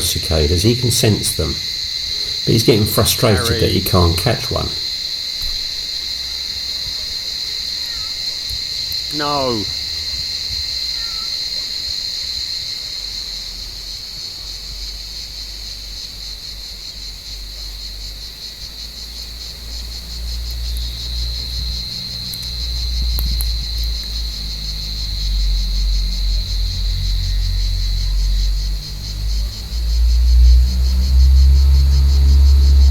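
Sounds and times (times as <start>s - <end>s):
cicadas calling: 0.0s - 32.9s
low rumble: 25.8s - 32.9s.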